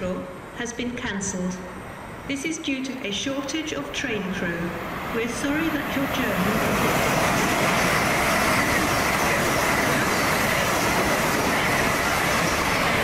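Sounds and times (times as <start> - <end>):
train wheels rushing on rail: 1.8 - 13.0.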